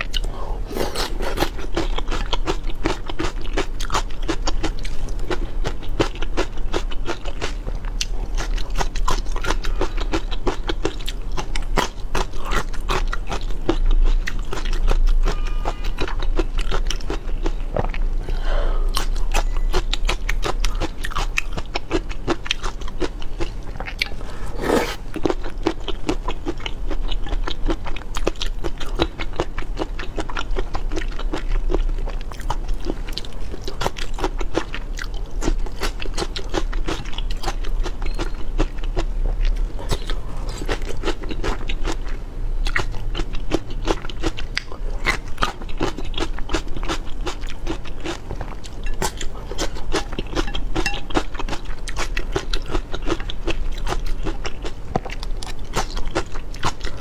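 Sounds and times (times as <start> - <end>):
chewing and crunching food: 0.0 - 57.0
low hum: 14.9 - 21.2.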